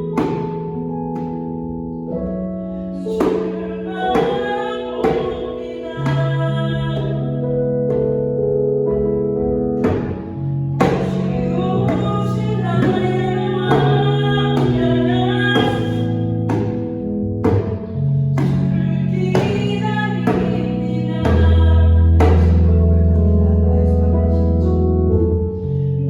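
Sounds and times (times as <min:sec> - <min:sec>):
keyboard chords: 0:00.0 - 0:26.0
person singing: 0:03.0 - 0:08.2, 0:10.8 - 0:16.8, 0:18.4 - 0:26.0
djembe strikes: 0:09.8 - 0:10.2, 0:10.8 - 0:12.1, 0:12.8 - 0:17.8.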